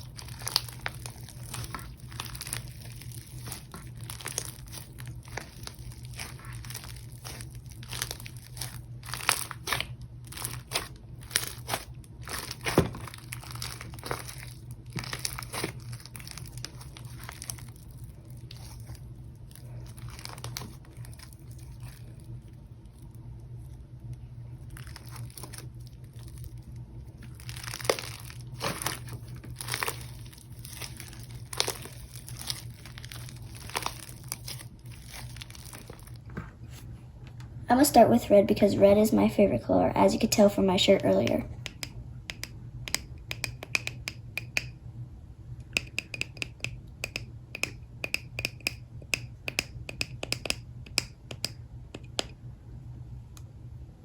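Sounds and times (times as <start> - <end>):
hands squishing slime: 0.0 - 22.3, 24.7 - 36.3.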